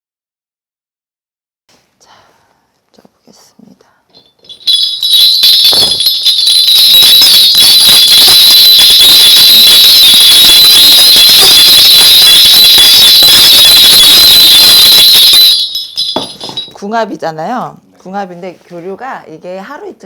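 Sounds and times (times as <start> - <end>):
small metal bells shaken: 4.2 - 7.6, 15.5 - 16.8.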